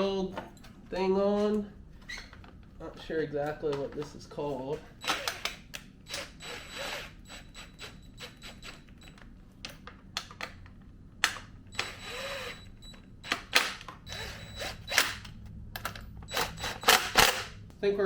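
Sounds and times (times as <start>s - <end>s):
tools and parts clicking: 8.7s - 17.6s.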